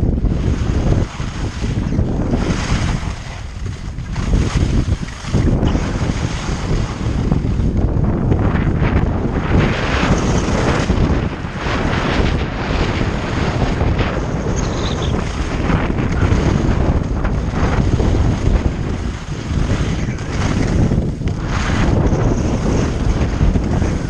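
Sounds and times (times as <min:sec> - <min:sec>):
wind rushing over microphone: 0:00.0 - 0:24.0
skis scraping on snow: 0:00.9 - 0:07.0, 0:11.6 - 0:24.0.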